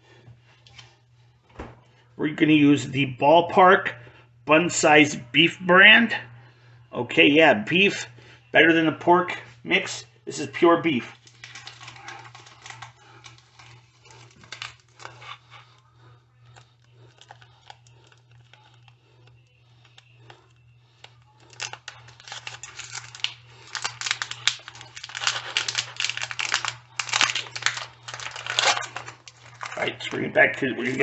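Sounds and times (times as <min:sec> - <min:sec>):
low steady hum: 0:00.0 - 0:31.0
package crinkling and tearing: 0:11.1 - 0:30.2, 0:30.8 - 0:31.0.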